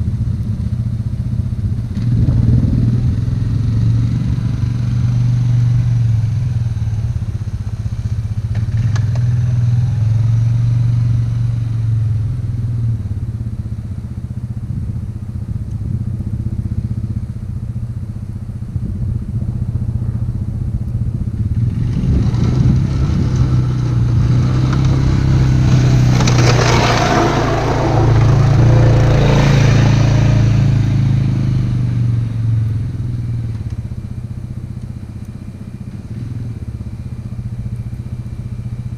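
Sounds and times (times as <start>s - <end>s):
atv engine running: 0.0s - 38.9s
plow blade scraping snow: 21.6s - 31.6s.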